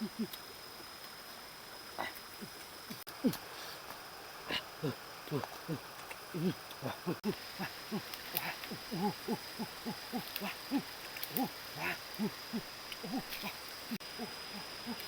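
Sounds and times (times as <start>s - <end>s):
low hooting animal calls: 6.4s - 15.0s.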